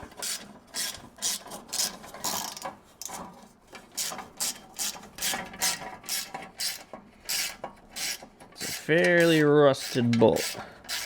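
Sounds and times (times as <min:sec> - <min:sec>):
ratchet wrench clicking: 0:05.6 - 0:11.0.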